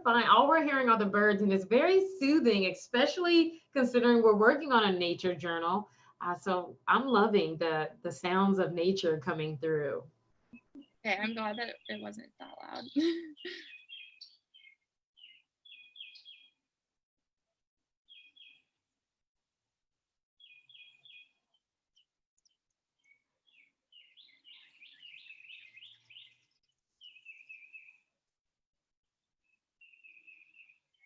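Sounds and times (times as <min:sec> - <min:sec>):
songbird chirping faintly: 0:08.2 - 0:16.7, 0:18.1 - 0:18.7, 0:20.4 - 0:28.2, 0:29.4 - 0:31.0.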